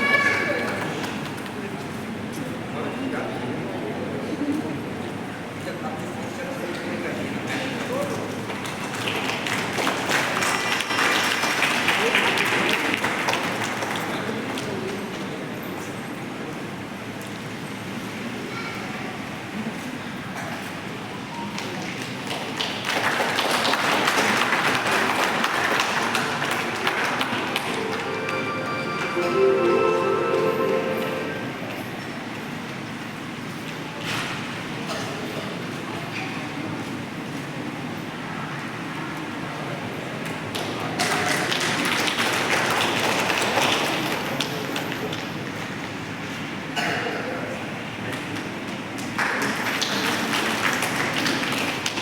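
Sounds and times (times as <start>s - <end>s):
audience clapping: 8.6s - 14.3s, 22.3s - 29.8s, 49.2s - 52.0s
audience applauding: 22.6s - 31.4s.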